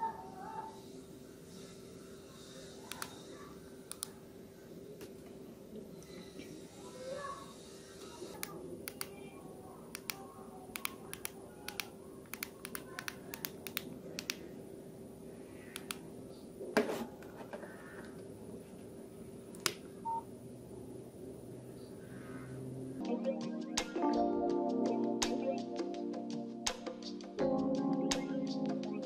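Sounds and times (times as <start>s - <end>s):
phone keypad clicks: 9.9s - 14.4s.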